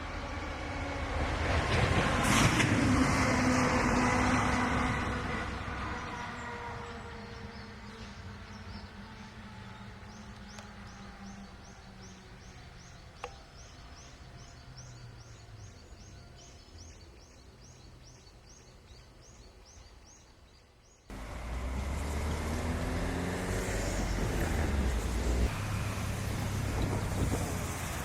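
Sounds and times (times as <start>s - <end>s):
loud engine running: 21.1s - 28.0s
wind buffeting microphone: 21.2s - 28.0s.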